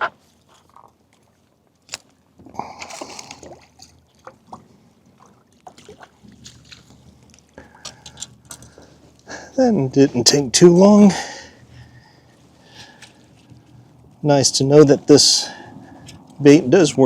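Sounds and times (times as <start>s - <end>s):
fish splashing in water: 0.6s - 8.8s.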